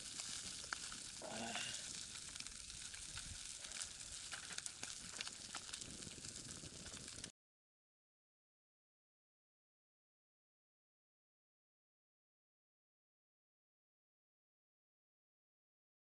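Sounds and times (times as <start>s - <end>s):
fish sizzling in a frying pan: 0.0s - 7.3s
small ticks and crackles: 0.0s - 7.3s.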